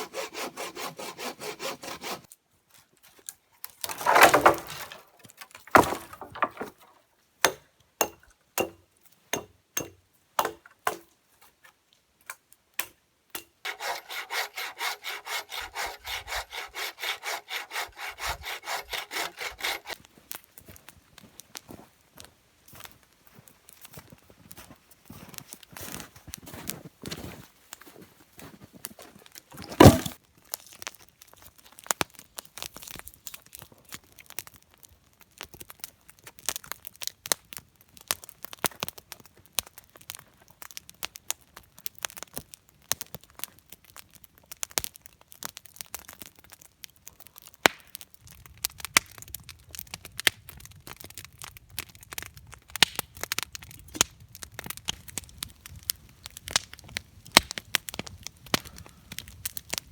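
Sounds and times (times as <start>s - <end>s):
campfire crackling and popping: 29.2s - 59.9s
loud thump: 29.7s - 30.2s.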